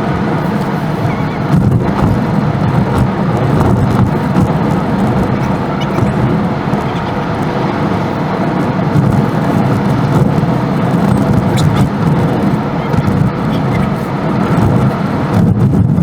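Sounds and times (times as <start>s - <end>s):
car driving on road: 0.0s - 16.0s.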